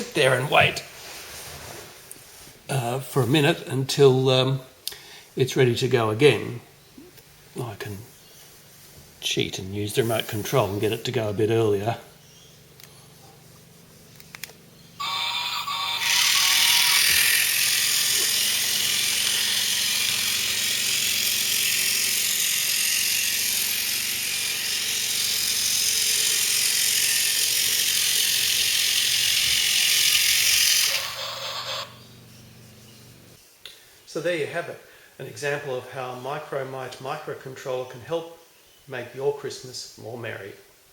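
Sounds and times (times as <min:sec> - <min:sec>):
toy train motor whirring: 0:14.0 - 0:32.1.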